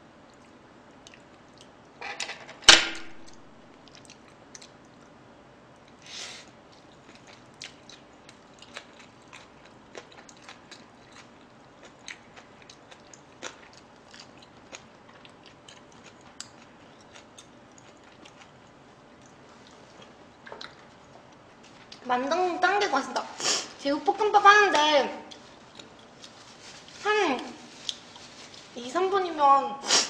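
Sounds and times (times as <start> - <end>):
close-up chewing crunches: 3.3 - 5.2, 6.7 - 22.0, 25.3 - 28.7.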